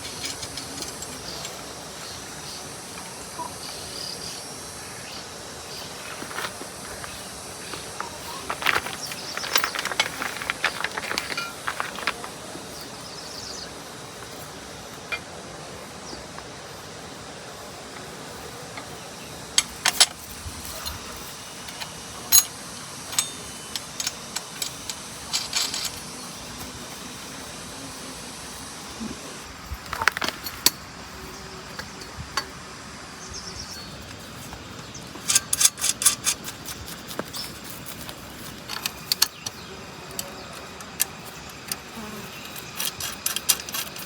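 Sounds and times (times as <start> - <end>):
metal tools clinking: 0.0 - 1.9, 5.8 - 12.9, 19.6 - 26.9, 35.2 - 44.0
steady hiss: 0.0 - 44.0.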